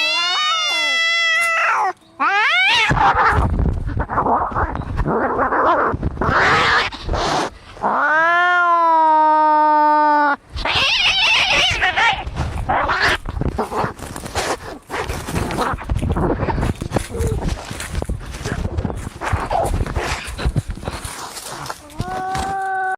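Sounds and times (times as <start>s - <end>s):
cat yowling: 0.0s - 3.4s, 7.9s - 12.2s
cats hissing and spitting: 2.8s - 7.9s, 10.6s - 17.6s.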